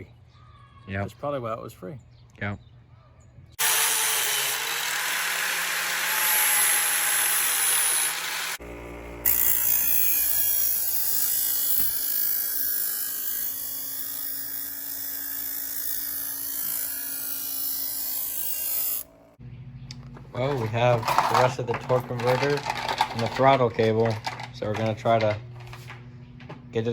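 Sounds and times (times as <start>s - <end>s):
power tool grinding metal: 3.6s - 19.4s.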